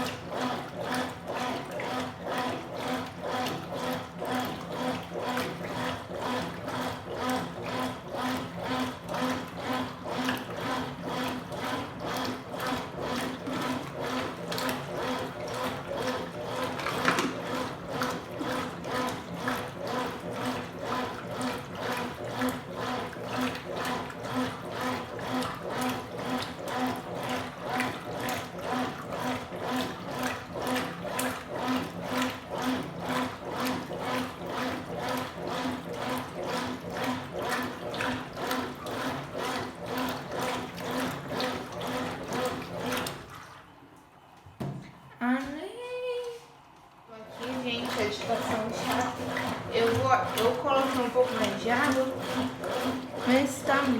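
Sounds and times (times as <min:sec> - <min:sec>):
washing machine motor pulsing: 0:00.0 - 0:53.9
water sloshing in tub: 0:00.0 - 0:53.9.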